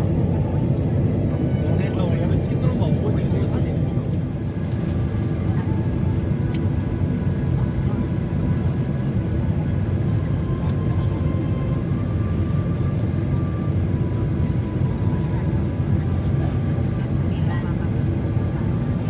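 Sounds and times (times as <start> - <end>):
aircraft cabin low rumble: 0.0 - 19.0.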